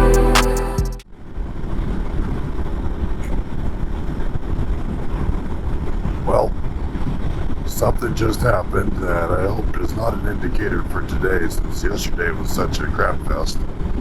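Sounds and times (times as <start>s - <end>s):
background music: 0.0s - 1.0s
road noise: 0.0s - 14.0s.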